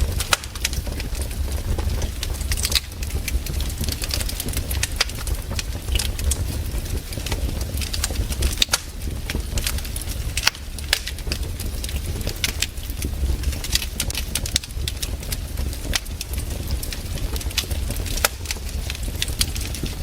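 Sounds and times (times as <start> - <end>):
campfire crackling and popping: 0.0 - 20.0
low fire rumble: 0.0 - 20.0.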